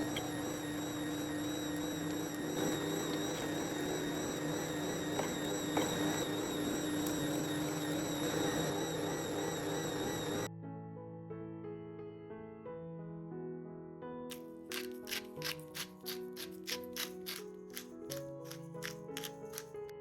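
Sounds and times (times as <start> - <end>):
small electric motor whining: 0.0 - 10.5, 14.7 - 19.9.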